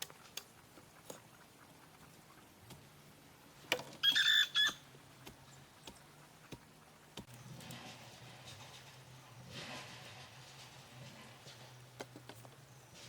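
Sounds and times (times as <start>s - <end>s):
chicken squawk: 4.0s - 4.8s.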